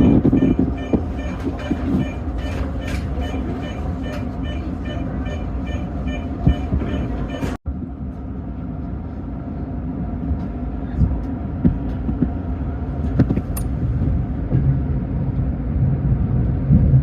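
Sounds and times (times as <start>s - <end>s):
train clunks: 0.0s - 8.3s
train running rumble: 0.0s - 17.0s.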